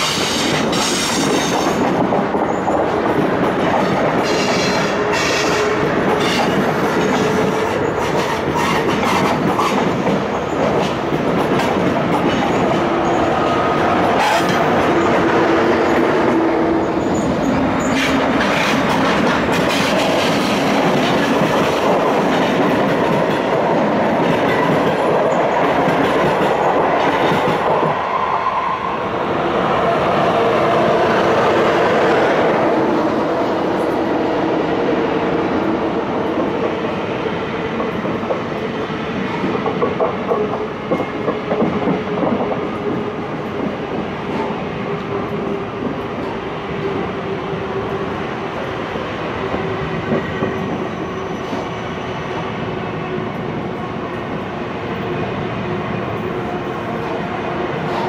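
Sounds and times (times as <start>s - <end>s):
wheels rumbling on rail: 0.0s - 58.0s.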